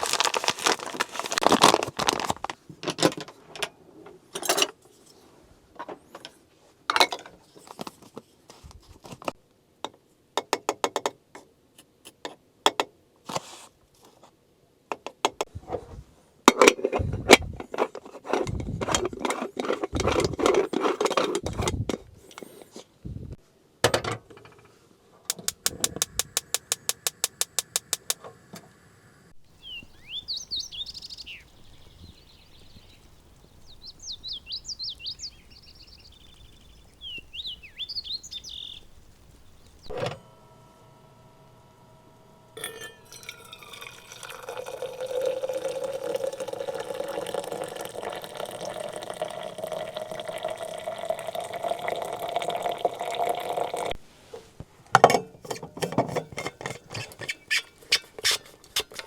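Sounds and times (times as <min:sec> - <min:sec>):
irregular knocks and clicks: 0:25.3 - 0:28.2
rapid even clicks: 0:25.3 - 0:28.2
wild birds chirping: 0:25.5 - 0:39.9.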